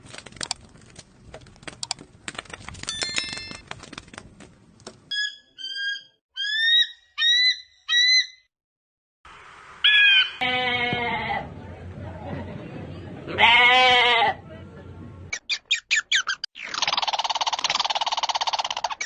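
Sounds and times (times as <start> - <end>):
rapid clicks: 16.7 - 19.0.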